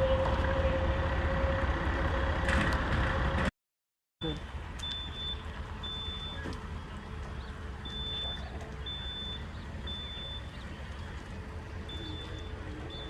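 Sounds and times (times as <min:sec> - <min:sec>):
steady low rumble: 0:04.2 - 0:13.0
high electronic beep: 0:07.9 - 0:10.5.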